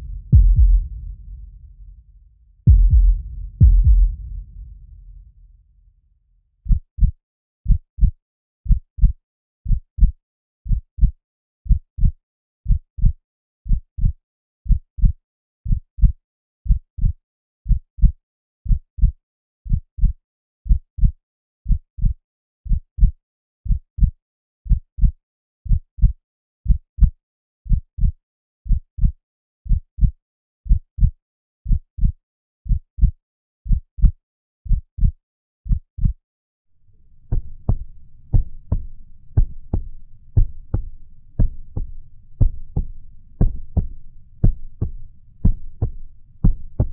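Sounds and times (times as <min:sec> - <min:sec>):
heartbeat thumps: 0:00.0 - 0:02.0, 0:02.6 - 0:05.4, 0:37.1 - 0:46.9.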